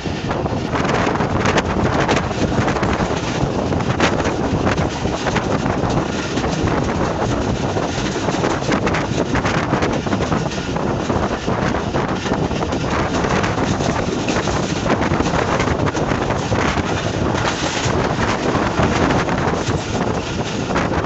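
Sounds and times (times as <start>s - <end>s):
train running on track: 0.0s - 21.0s
wind rushing over microphone: 0.0s - 21.0s.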